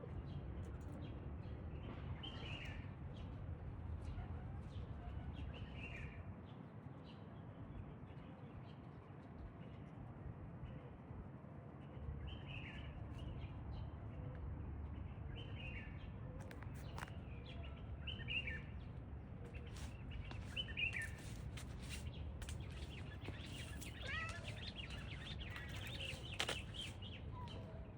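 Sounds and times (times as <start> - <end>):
small birds chirping: 15.4 - 27.9.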